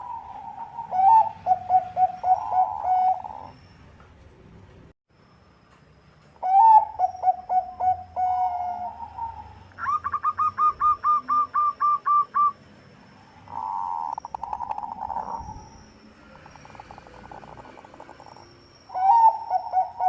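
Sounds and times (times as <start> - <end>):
dove cooing: 0.0 - 3.6, 6.4 - 12.6, 13.5 - 15.5, 18.9 - 20.0.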